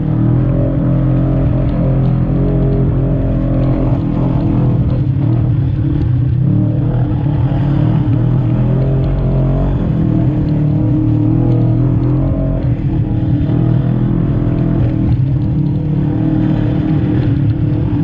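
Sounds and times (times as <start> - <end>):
utility vehicle engine revving: 0.0 - 18.0.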